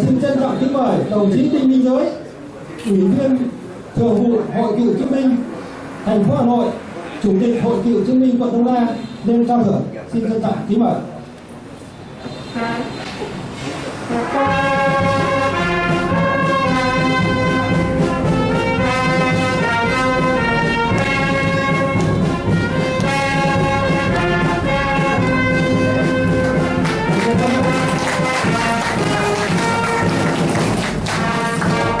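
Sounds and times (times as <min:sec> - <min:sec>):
brass band fanfare: 0:12.3 - 0:13.0, 0:14.0 - 0:32.0.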